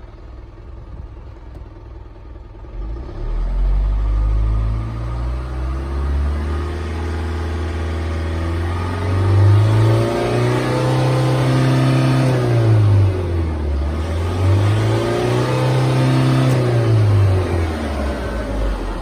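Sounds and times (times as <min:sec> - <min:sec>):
truck engine revving: 0:02.7 - 0:19.0.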